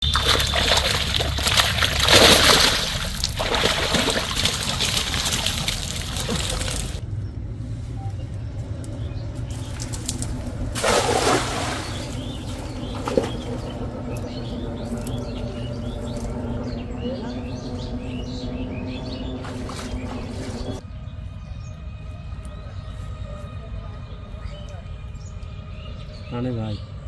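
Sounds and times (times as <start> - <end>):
water splashing and sloshing: 0.0 - 7.0, 9.4 - 16.4, 19.3 - 20.8.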